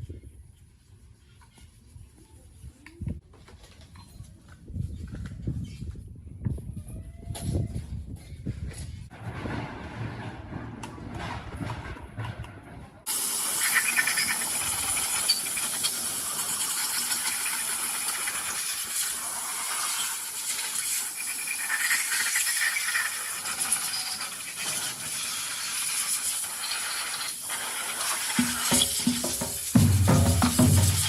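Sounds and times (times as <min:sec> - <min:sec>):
high-pitched hiss: 0:13.1 - 0:31.0.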